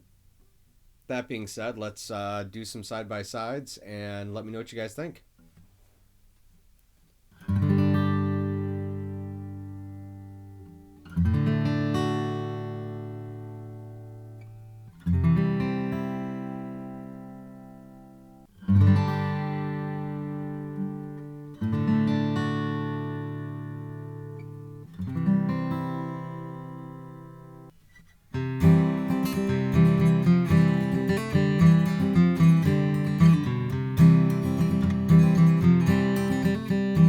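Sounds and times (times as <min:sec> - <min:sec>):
acoustic guitar strumming: 0:07.4 - 0:37.0.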